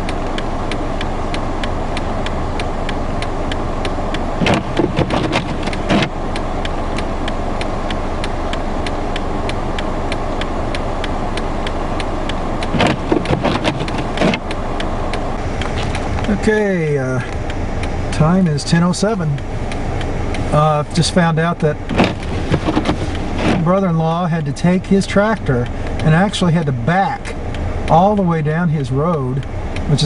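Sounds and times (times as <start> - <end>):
car engine idling: 0.0 - 30.0
regular ticking: 0.0 - 30.0
clusters of knocks: 12.7 - 14.4.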